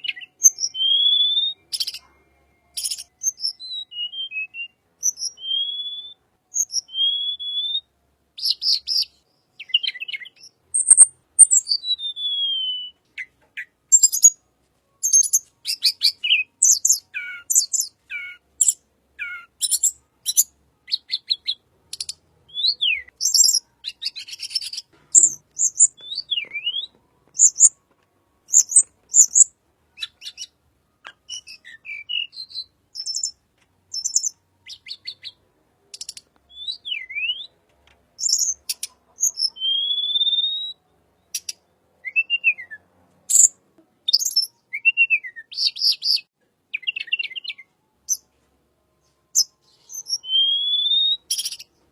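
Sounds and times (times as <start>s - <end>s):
songbird singing: 0.0s - 51.9s.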